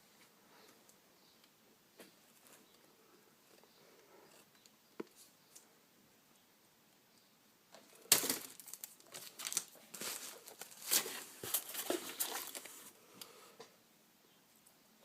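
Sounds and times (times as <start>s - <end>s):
packaging crinkling: 8.1s - 12.9s.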